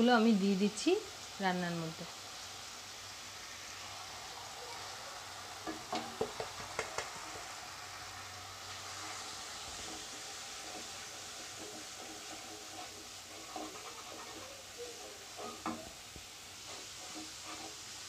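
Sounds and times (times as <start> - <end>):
spices sizzling in oil: 0.0 - 18.0
utensil knocking against pan: 5.7 - 7.1.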